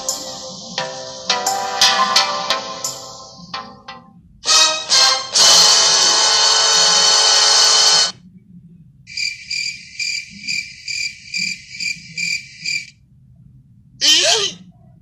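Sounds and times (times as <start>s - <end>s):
high-pitched cricket chirps: 9.1s - 13.0s.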